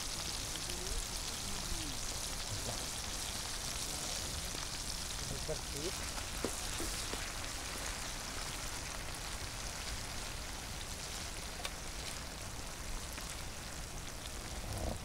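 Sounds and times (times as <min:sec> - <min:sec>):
food sizzling in hot oil: 0:00.0 - 0:15.0
oil popping: 0:02.5 - 0:08.8.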